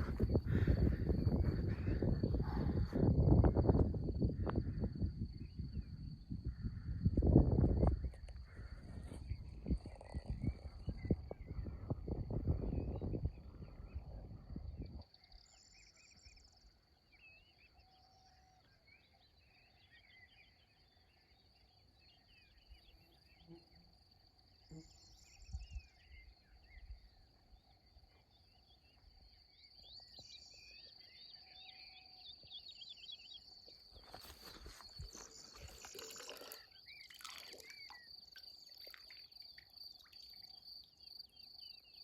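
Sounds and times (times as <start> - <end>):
high-pitched insect trill: 0.0 - 42.0
short bird chirps: 34.0 - 40.9.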